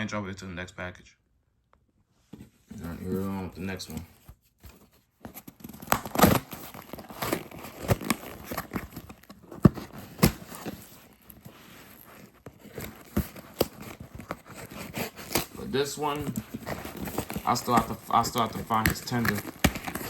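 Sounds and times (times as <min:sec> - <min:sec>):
handling knocks and rustles: 0:02.3 - 0:20.0
packaging tearing and crinkling: 0:05.3 - 0:20.0.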